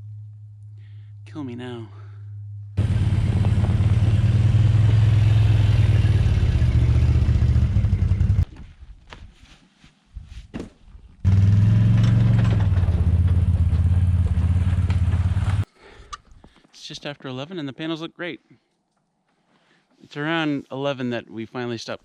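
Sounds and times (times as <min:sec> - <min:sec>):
quad engine running: 0:02.8 - 0:08.4, 0:11.3 - 0:15.6.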